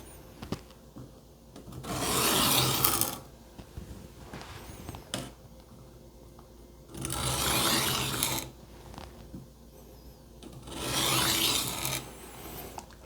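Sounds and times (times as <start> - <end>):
knife grinding on sharpening plate: 10.7 - 12.1.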